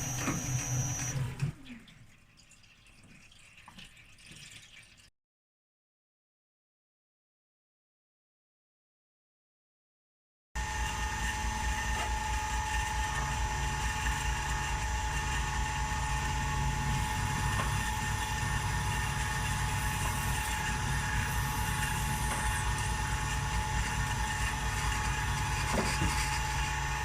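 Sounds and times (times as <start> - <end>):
machine tool motor humming: 0.0 - 1.6, 10.6 - 27.0.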